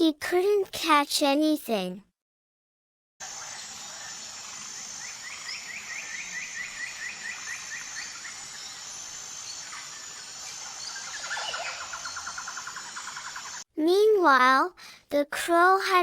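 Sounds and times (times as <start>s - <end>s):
steady background hiss: 3.2s - 13.6s
birds chirping: 3.3s - 13.6s
bird trilling: 9.5s - 13.6s.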